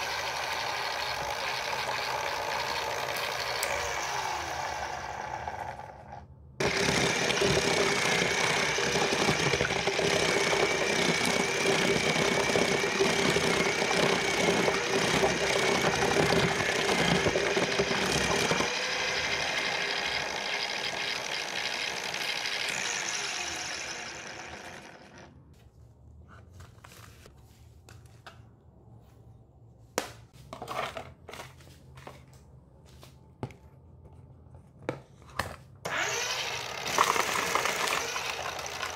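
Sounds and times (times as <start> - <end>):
slicer motor whine: 0.0 - 25.3, 35.9 - 38.9.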